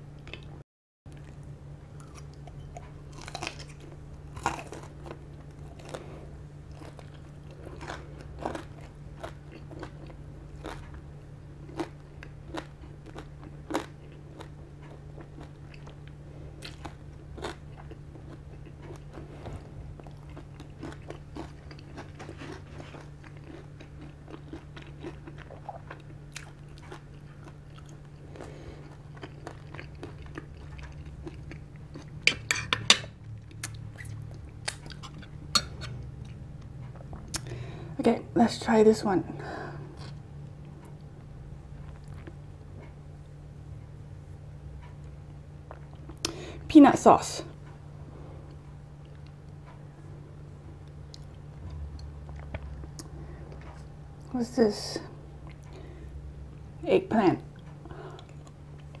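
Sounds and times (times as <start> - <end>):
steady low hum: 0.0 - 59.0
crunchy chewing: 1.1 - 37.8, 39.8 - 43.3.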